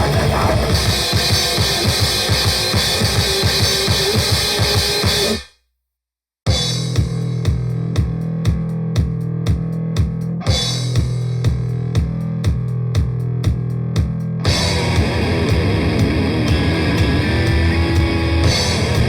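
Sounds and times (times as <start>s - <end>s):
distorted guitar and bass riff: 0.0s - 5.5s, 13.4s - 19.0s
drum beat: 0.0s - 5.5s, 6.5s - 19.0s.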